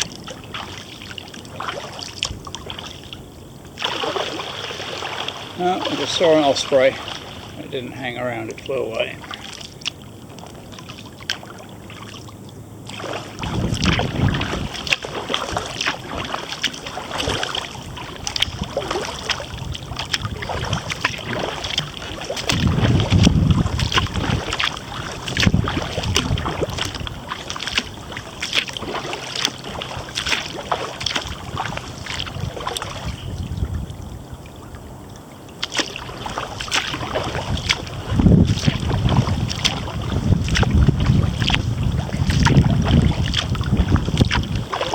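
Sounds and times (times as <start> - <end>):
paddle splashing in water: 0.0 - 44.9
wind rumbling on microphone: 0.0 - 44.9
water dripping: 18.2 - 33.0.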